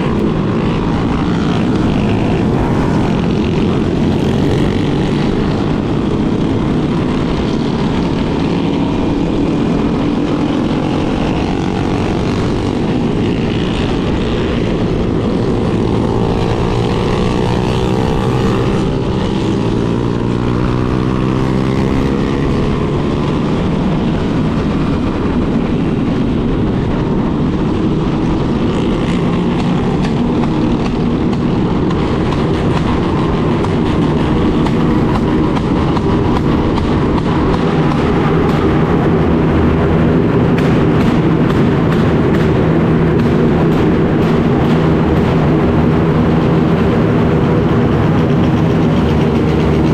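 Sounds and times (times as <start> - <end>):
motorcycle engines rumbling: 0.0 - 49.9.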